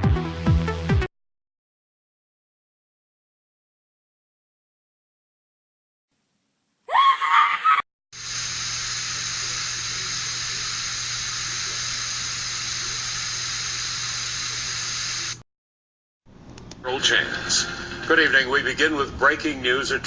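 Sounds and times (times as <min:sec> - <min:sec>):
steady even hiss: 0:08.2 - 0:15.4.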